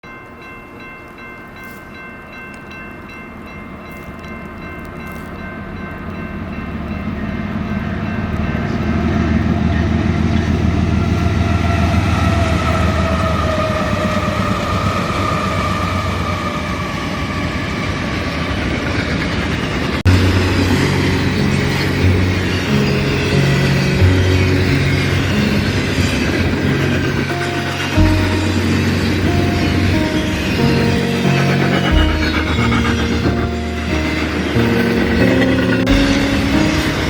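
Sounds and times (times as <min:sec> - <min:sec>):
diesel train rumbling past: 0:02.2 - 0:37.0
train horn: 0:10.8 - 0:16.9, 0:20.1 - 0:37.0.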